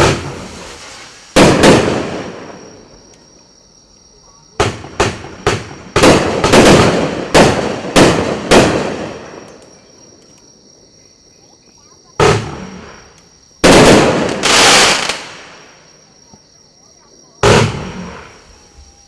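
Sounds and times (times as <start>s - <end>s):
firework bangs with echo: 0.0s - 2.9s, 4.6s - 9.5s, 12.2s - 13.0s, 13.6s - 15.7s, 17.4s - 18.5s.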